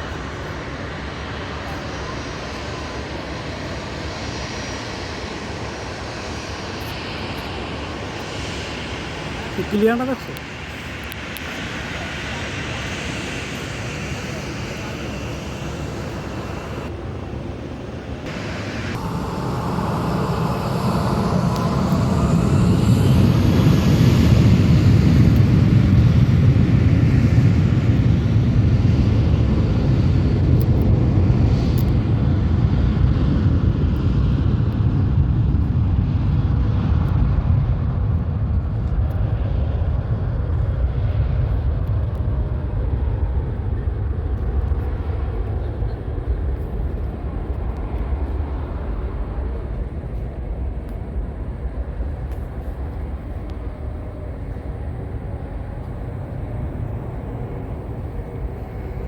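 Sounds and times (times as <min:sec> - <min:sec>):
jet engines rumbling: 0:00.0 - 0:59.0
faint rising whine: 0:02.1 - 0:28.0, 0:46.7 - 0:59.0.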